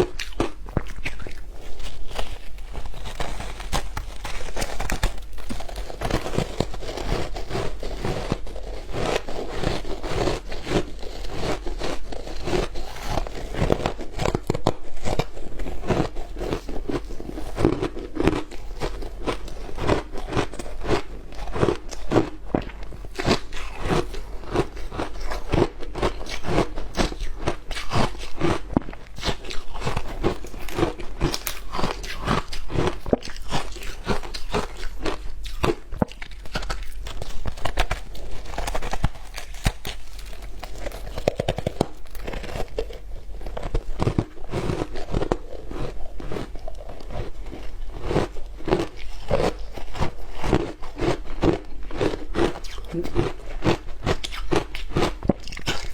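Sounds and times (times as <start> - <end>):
ice crunching: 0.0 - 15.3
chewing: 0.0 - 55.9.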